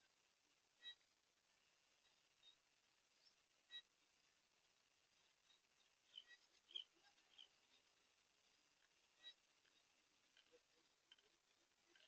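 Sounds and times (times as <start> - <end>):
small animal high chirps: 6.1 - 7.6.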